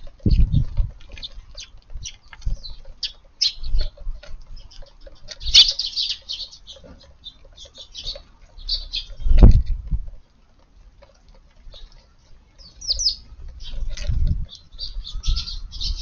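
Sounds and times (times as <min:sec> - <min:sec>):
sparrows chirping: 0:00.0 - 0:09.7, 0:11.2 - 0:16.0.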